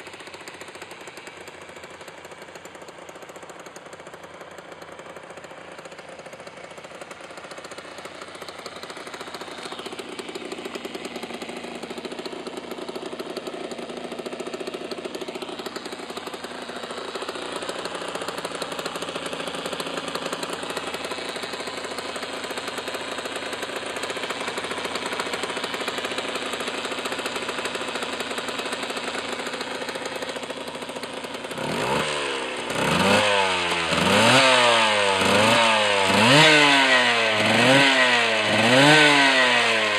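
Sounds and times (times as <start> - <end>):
two-stroke engine idling: 0.0 - 39.9
engine revving: 9.8 - 39.9.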